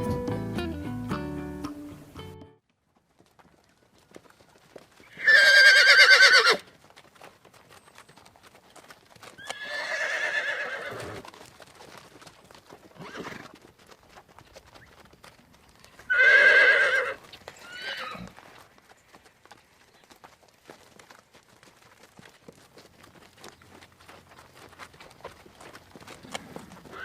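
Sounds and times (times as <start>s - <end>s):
horse neighing: 5.1s - 6.6s, 9.4s - 11.2s, 13.0s - 13.5s, 16.1s - 18.4s, 26.4s - 27.0s.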